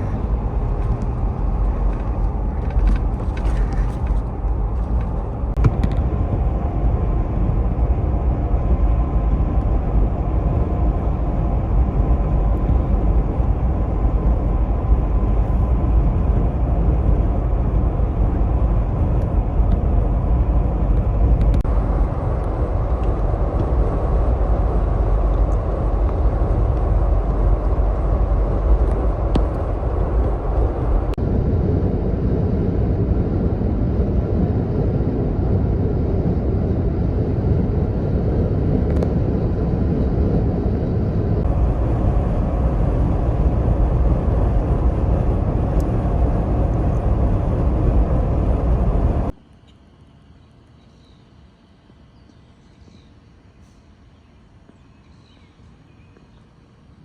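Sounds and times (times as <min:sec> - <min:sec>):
car engine and tyre drone: 0:00.0 - 0:49.6.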